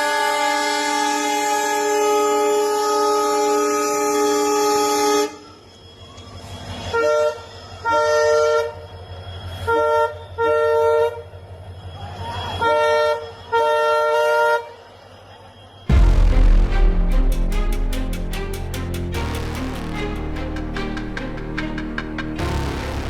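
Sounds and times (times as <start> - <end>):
train horn blasts: 0.0 - 5.6, 6.9 - 8.9, 9.5 - 11.4, 12.6 - 14.8
low rumble: 15.9 - 23.0.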